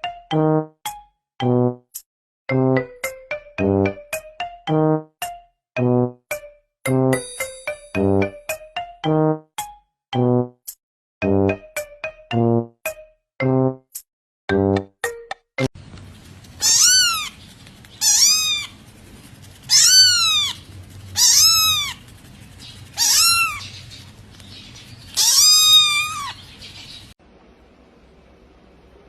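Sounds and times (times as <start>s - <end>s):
cat meowing: 16.6s - 17.4s, 18.0s - 18.8s, 19.7s - 20.6s, 21.2s - 22.0s, 23.0s - 23.6s, 25.2s - 26.4s.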